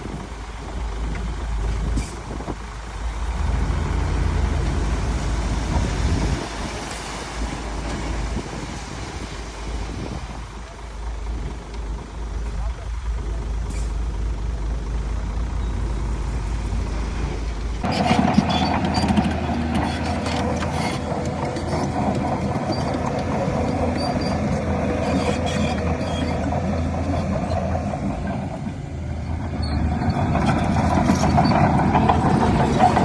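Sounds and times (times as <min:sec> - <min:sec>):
diesel machinery engine: 0:00.0 - 0:33.0
machinery clattering: 0:17.6 - 0:33.0.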